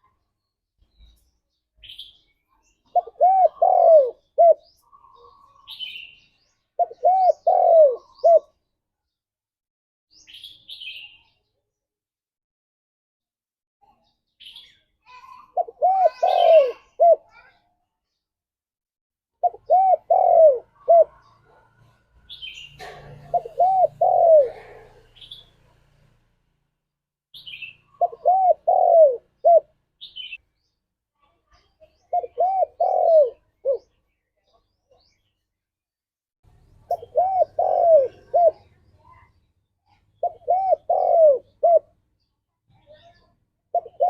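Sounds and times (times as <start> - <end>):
faint bird chirps: 0.0 - 8.6, 27.4 - 35.6, 36.5 - 44.0
dove cooing: 2.9 - 5.8, 6.8 - 8.5, 15.6 - 17.4, 19.4 - 25.5, 27.6 - 29.7, 32.1 - 33.9, 36.8 - 38.7, 40.2 - 42.0, 43.7 - 44.0.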